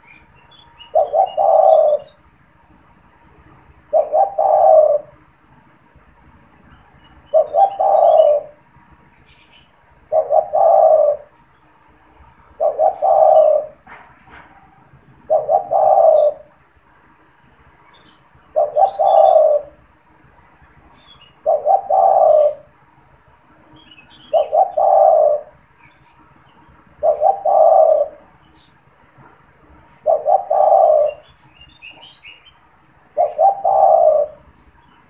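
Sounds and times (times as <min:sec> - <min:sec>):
dove cooing: 0:00.8 - 0:02.2, 0:03.9 - 0:05.2, 0:07.3 - 0:08.6, 0:10.0 - 0:11.5, 0:12.5 - 0:16.6, 0:18.0 - 0:19.8, 0:21.0 - 0:22.8, 0:24.1 - 0:26.0, 0:27.0 - 0:28.7, 0:29.9 - 0:32.3, 0:33.1 - 0:34.8.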